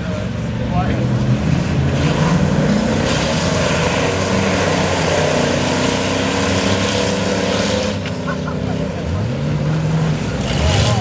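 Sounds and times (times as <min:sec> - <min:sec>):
racing truck engines roaring: 0:00.0 - 0:11.0.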